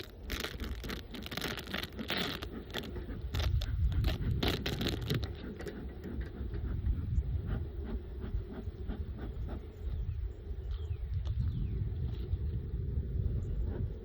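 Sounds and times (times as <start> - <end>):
hive tool scraping wooden frames: 0.0 - 6.9
microphone handling noise: 0.0 - 14.0
wind rumble: 0.0 - 14.0.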